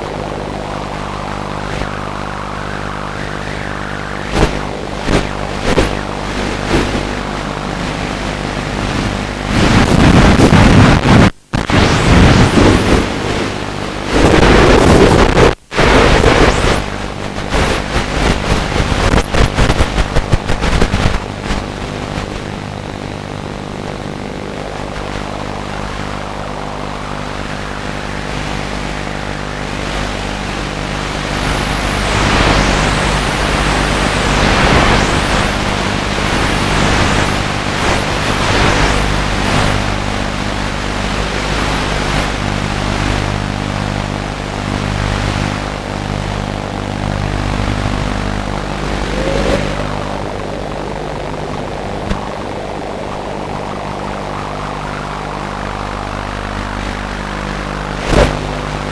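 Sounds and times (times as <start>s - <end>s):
model aircraft motor droning: 0.0s - 8.5s, 47.5s - 58.1s
wind on the microphone: 0.0s - 22.5s.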